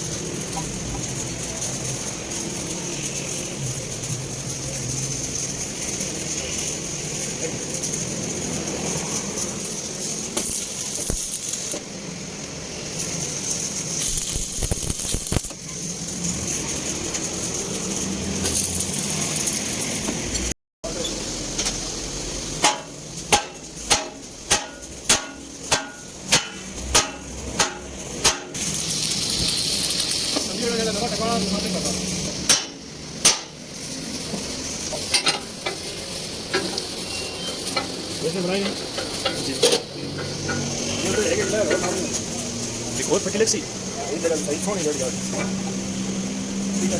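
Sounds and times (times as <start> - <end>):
arc welding sizzle: 0.0 - 46.9
steady hiss: 0.0 - 46.9
welding pops: 10.3 - 11.9, 14.0 - 15.6, 22.6 - 30.6, 32.4 - 33.6.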